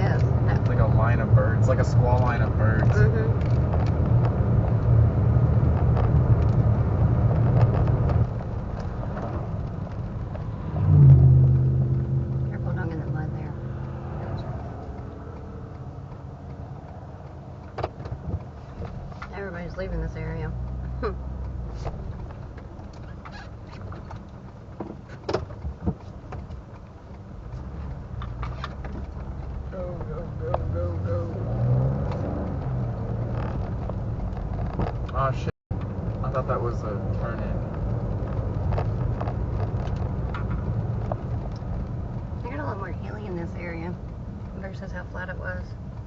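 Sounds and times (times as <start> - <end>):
car engine and tyres rumbling: 0.0 - 46.0
light ticks: 11.9 - 35.2, 35.8 - 46.0.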